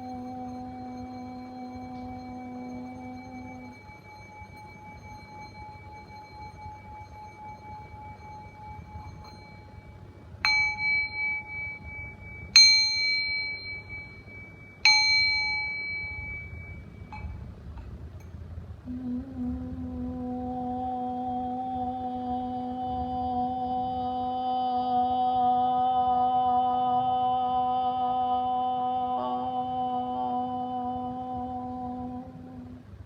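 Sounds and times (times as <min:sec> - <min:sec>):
small metal bell ringing: 0:00.0 - 0:17.6.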